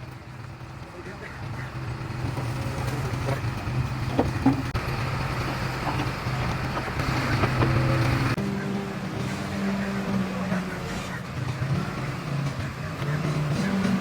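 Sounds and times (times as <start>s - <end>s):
heavy diesel engine drone: 0.0s - 14.0s
knocks and clicks: 3.1s - 4.8s, 5.4s - 8.4s.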